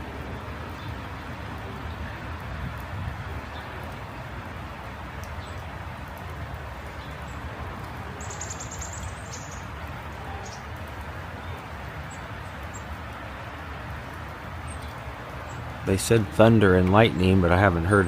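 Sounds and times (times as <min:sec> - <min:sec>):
bird chirping: 0:08.2 - 0:09.7.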